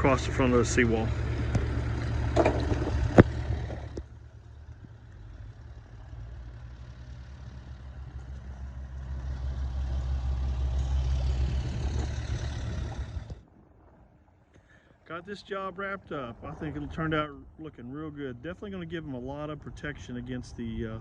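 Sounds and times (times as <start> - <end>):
engine idling: 0.0 - 13.4.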